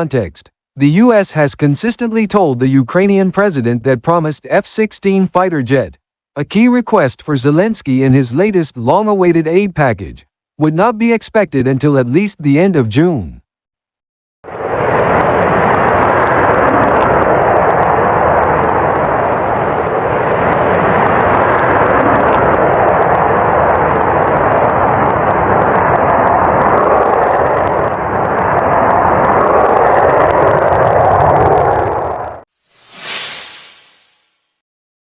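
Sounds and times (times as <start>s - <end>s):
jet engine roar: 14.5s - 34.3s.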